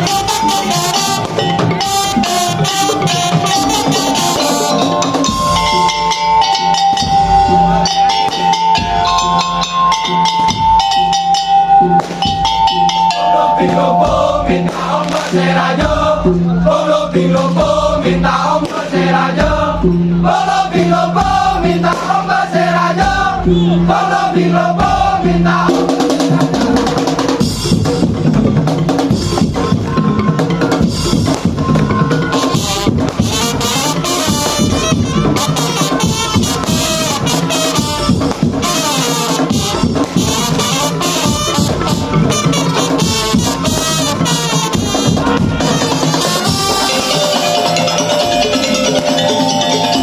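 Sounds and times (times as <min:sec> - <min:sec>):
ensemble melody line: 0:00.0 - 0:25.7, 0:45.1 - 0:50.0
drums and wooden strikes: 0:00.0 - 0:50.0.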